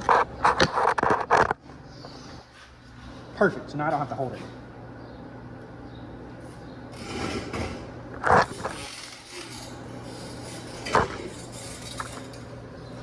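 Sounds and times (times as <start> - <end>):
steady low hum: 0.0 - 13.0
metal scraping on workbench: 7.0 - 12.5.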